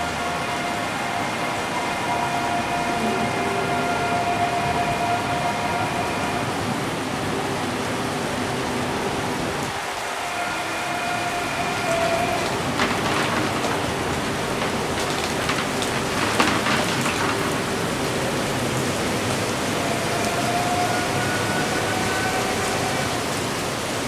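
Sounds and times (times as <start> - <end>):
electric train whine: 0.0 - 24.0
heavy rain hissing: 0.0 - 24.0.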